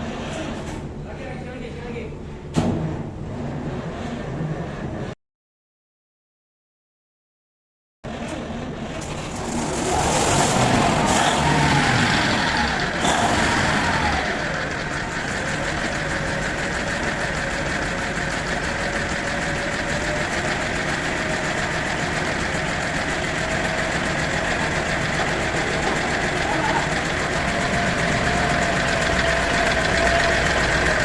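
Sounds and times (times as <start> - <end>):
diesel engine idling: 8.5 - 31.0.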